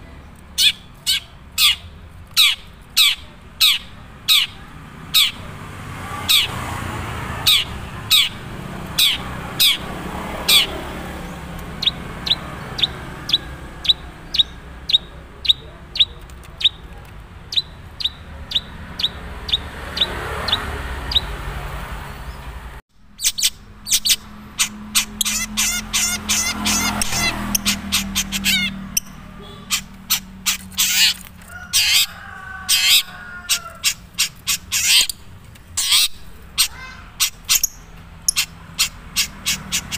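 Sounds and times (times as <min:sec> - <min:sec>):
bird calling sharp notes: 0:00.5 - 0:05.5, 0:06.1 - 0:21.4, 0:23.1 - 0:39.9.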